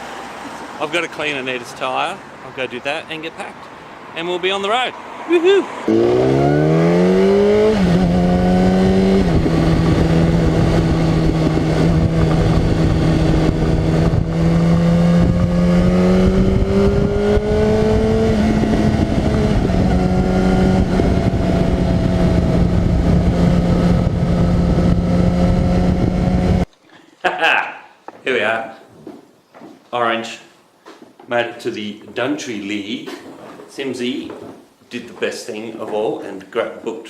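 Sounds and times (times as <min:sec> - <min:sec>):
wind and road noise: 0:00.0 - 0:26.7
motorcycle engine accelerating: 0:05.8 - 0:26.7.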